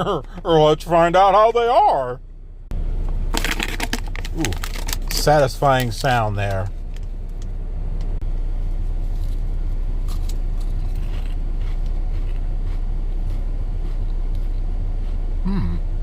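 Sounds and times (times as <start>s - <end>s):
low car cabin rumble: 0.0s - 16.0s
crisps being chewed: 3.3s - 6.0s, 10.0s - 15.2s.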